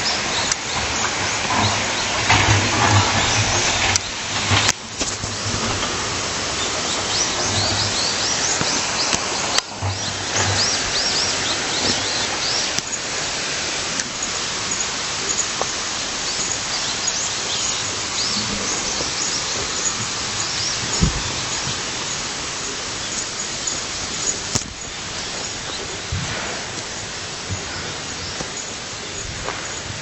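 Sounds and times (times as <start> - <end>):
flowing stream: 0.0 - 30.0
bird chirps: 6.5 - 13.2, 14.0 - 30.0.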